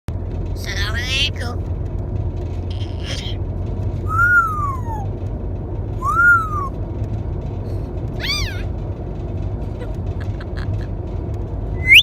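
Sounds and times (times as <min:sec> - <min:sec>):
parrot calling: 0:04.1 - 0:05.0, 0:06.0 - 0:06.7, 0:08.2 - 0:08.7.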